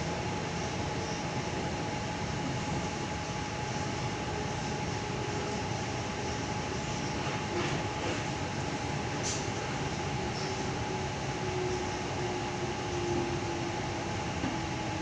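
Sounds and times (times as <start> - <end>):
train carriage hum and rumble: 0.0 - 15.0.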